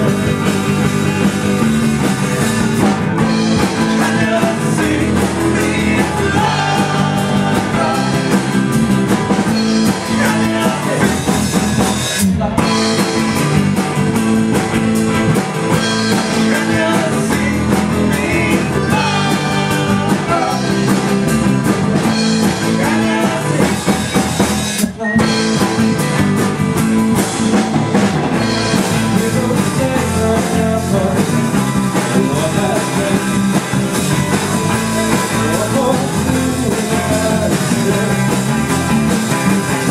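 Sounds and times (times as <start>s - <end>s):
drum kit: 0.0s - 39.9s
electric guitar: 0.0s - 39.9s
live rock band playing: 0.0s - 39.9s
person singing: 3.5s - 8.8s, 9.7s - 11.3s, 15.9s - 21.2s, 22.3s - 24.0s, 28.4s - 33.9s, 34.5s - 39.0s.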